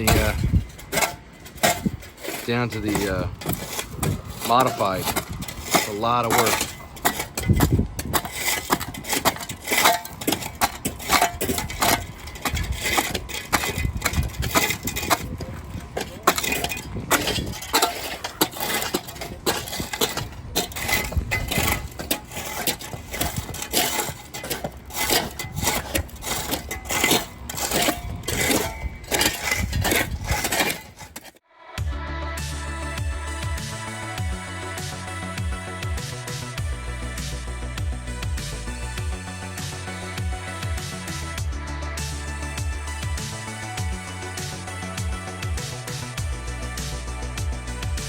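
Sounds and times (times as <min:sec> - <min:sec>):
shovel scraping gravel: 0:00.0 - 0:31.4
stones clattering: 0:00.0 - 0:31.4.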